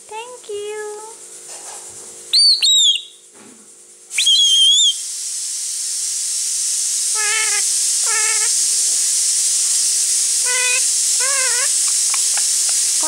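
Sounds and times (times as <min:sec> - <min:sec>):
steady hiss: 0:00.0 - 0:13.0
parakeet shrill whistles: 0:02.3 - 0:03.2, 0:04.1 - 0:05.0, 0:07.1 - 0:08.6, 0:10.4 - 0:13.0.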